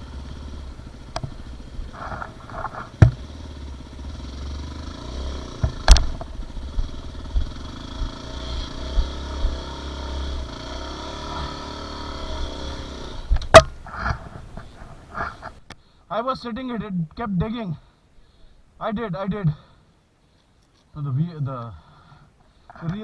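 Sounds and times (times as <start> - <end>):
dirt bike engine at low revs: 0.0 - 15.7
sharp knock: 3.0 - 3.2.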